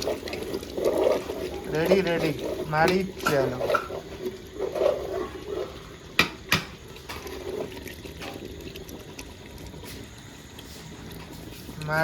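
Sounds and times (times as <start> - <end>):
bubbling splashing liquid: 0.0 - 12.0.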